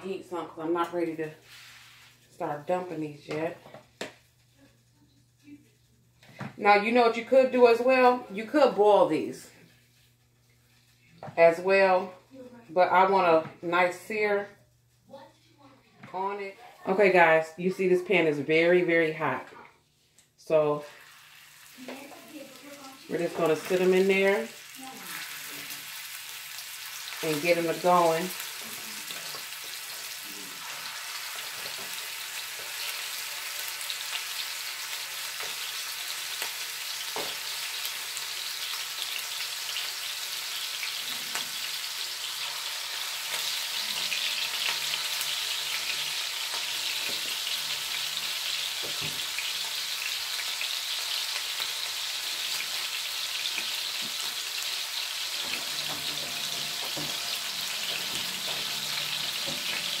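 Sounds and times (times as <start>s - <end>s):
meatballs sizzling in oil: 1.0s - 4.5s, 20.4s - 60.0s.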